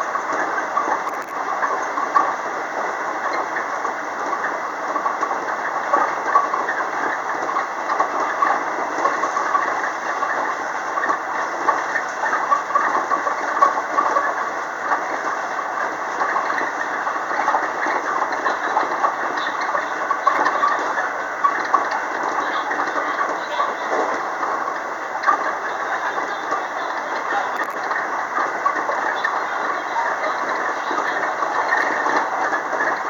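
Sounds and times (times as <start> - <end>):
faint irregular clicks: 0.2 - 2.3, 16.1 - 33.0.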